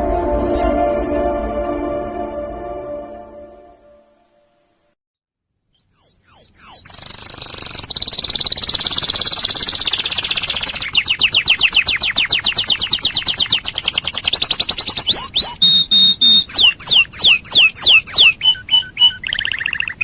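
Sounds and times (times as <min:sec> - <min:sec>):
canary singing: 0:05.8 - 0:20.0.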